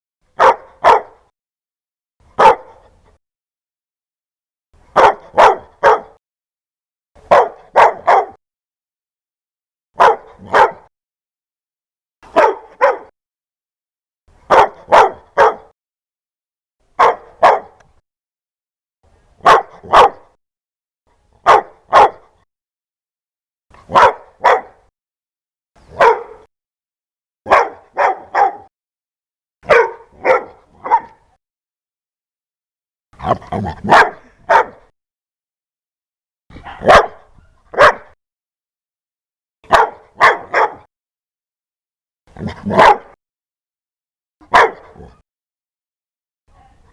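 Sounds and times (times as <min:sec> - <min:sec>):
dog barking loudly: 0:00.4 - 0:01.3, 0:02.4 - 0:02.8, 0:04.9 - 0:06.2, 0:07.2 - 0:08.4, 0:10.0 - 0:10.9, 0:12.3 - 0:13.1, 0:14.5 - 0:15.7, 0:17.0 - 0:17.8, 0:19.4 - 0:20.4, 0:21.4 - 0:22.4, 0:23.8 - 0:24.9, 0:25.9 - 0:26.5, 0:27.5 - 0:28.7, 0:29.6 - 0:31.3, 0:33.2 - 0:34.9, 0:36.6 - 0:38.2, 0:39.7 - 0:40.9, 0:42.4 - 0:43.2, 0:44.4 - 0:45.2.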